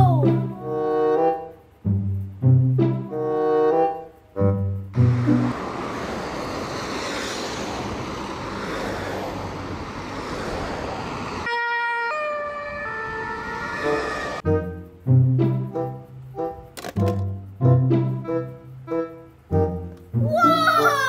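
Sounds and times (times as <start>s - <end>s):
road and engine noise: 0.3s - 20.2s
faint sirens: 5.0s - 14.5s
two-tone siren: 11.4s - 14.9s.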